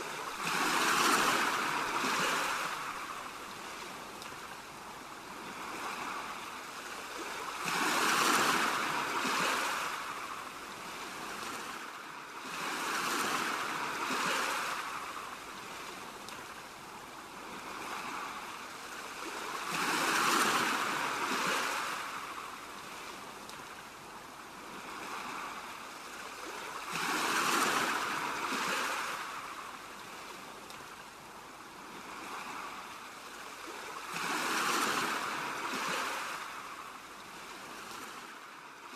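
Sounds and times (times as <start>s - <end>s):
ocean waves washing in: 0.0s - 38.9s.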